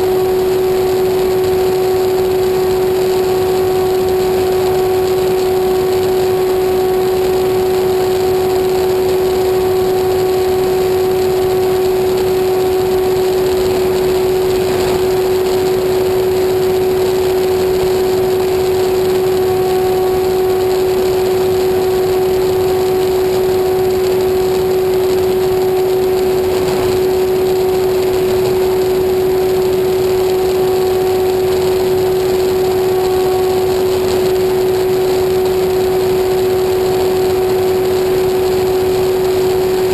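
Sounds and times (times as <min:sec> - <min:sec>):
aircraft engine droning: 0:10.5 - 0:20.8, 0:22.8 - 0:36.6.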